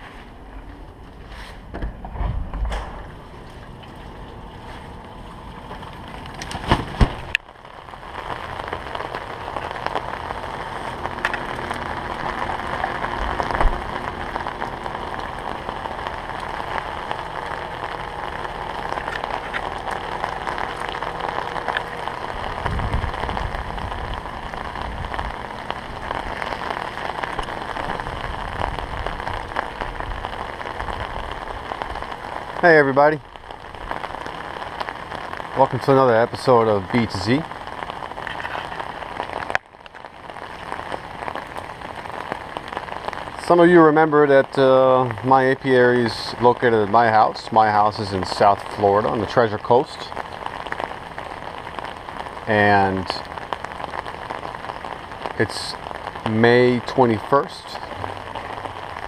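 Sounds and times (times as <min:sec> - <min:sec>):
low rumble: 0:00.0 - 0:36.5
rain patter: 0:00.0 - 0:59.0.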